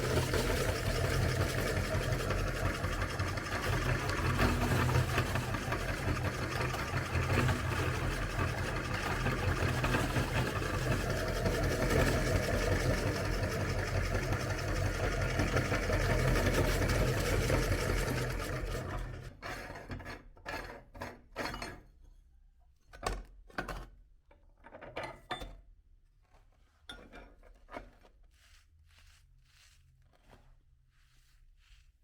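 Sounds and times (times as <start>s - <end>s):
meat grinder motor running: 0.0s - 19.4s
clinks and scrapes of handling: 26.2s - 31.9s.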